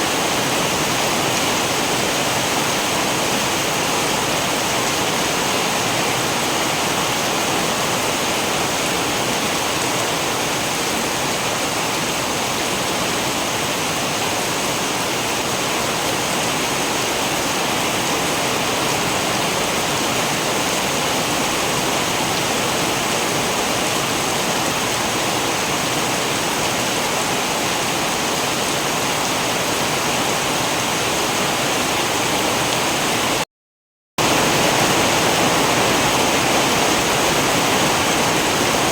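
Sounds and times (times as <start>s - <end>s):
steady rain: 0.0s - 33.4s, 34.2s - 38.9s.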